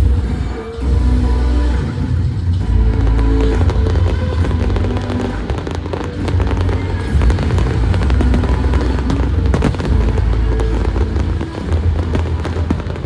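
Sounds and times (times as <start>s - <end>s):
heavy low rumble: 0.0s - 13.0s
loud music soundtrack: 0.0s - 13.0s
fireworks crackling and popping: 2.6s - 13.0s.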